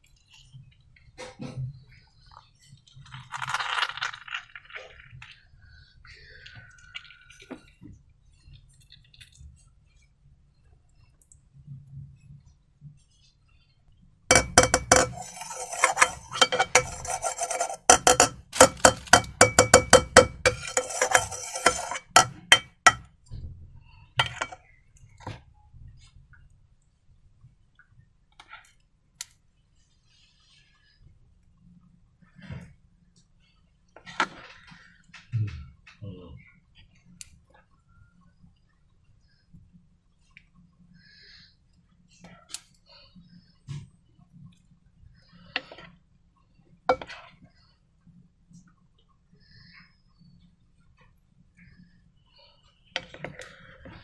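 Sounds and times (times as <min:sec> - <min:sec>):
hard objects clinking against a dish: 0:14.3 - 0:23.0, 0:24.2 - 0:24.6.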